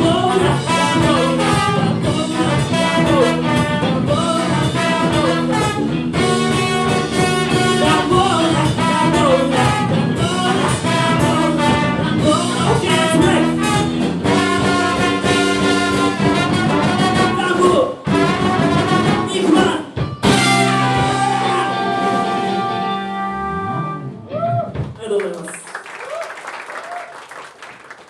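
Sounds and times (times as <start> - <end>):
person singing: 0.0 - 5.8, 7.1 - 13.9, 19.1 - 22.9
funk band with brass horns: 0.0 - 24.2.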